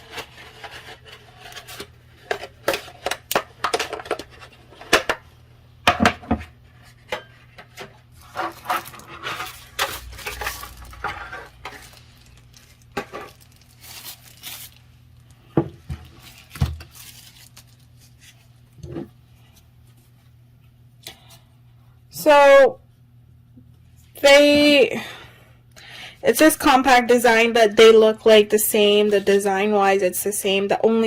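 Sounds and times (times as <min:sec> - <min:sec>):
paper and plastic wrapping rustling: 0:00.0 - 0:05.1, 0:06.7 - 0:20.3.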